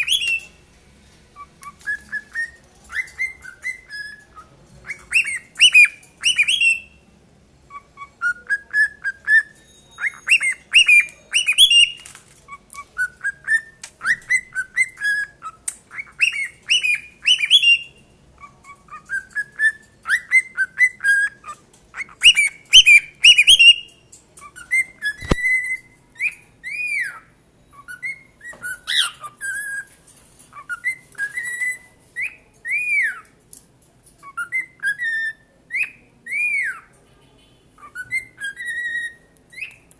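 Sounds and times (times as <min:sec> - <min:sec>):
cockatiels whistling: 0:00.0 - 0:00.5, 0:01.4 - 0:07.0, 0:07.7 - 0:29.9, 0:30.5 - 0:33.3, 0:34.2 - 0:36.9, 0:37.8 - 0:39.9
sharp click: 0:25.1 - 0:25.6.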